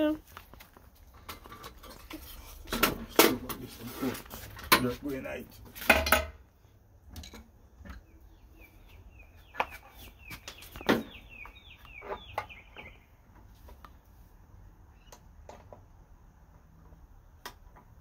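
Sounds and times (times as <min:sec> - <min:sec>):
bird chirping falling notes: 0:08.0 - 0:13.2.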